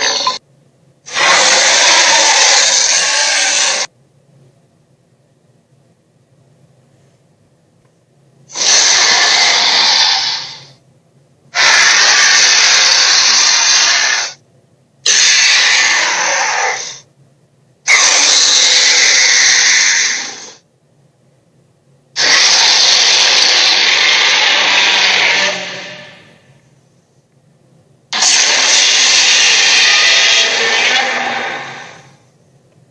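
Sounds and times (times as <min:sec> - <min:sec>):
dinosaur roars: 0:00.0 - 0:00.4, 0:01.1 - 0:03.9, 0:08.5 - 0:10.7, 0:11.6 - 0:14.4, 0:15.1 - 0:17.0, 0:17.9 - 0:20.6, 0:22.2 - 0:26.4, 0:28.2 - 0:32.2.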